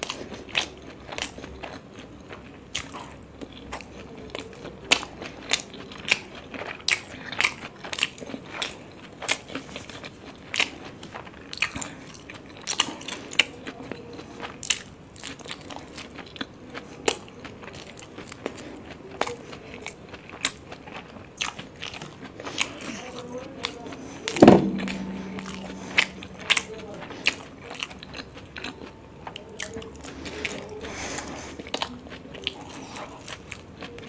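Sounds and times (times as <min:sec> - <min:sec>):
chewing mouth clicks and smacks: 0:00.0 - 0:24.4.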